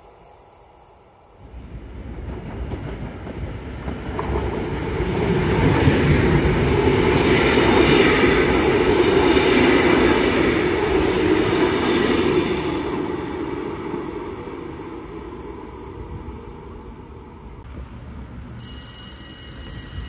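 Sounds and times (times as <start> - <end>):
train wheels rushing on rail: 1.4 - 18.3.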